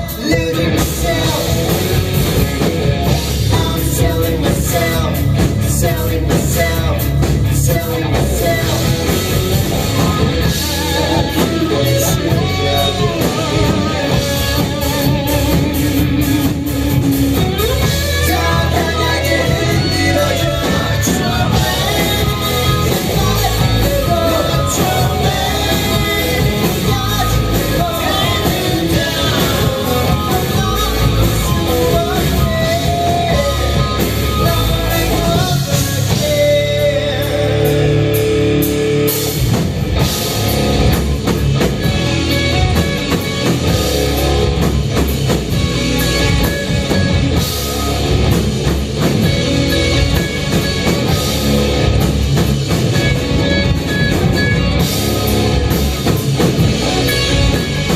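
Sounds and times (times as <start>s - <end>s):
person singing: 0.0s - 38.4s
rock band playing: 0.0s - 57.9s.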